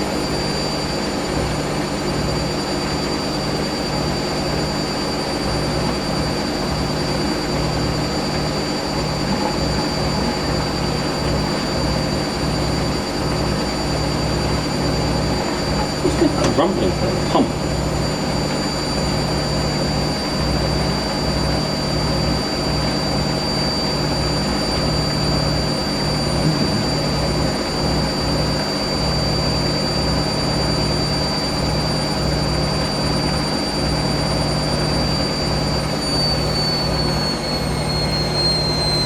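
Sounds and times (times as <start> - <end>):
washing machine high whine: 0.0 - 39.0.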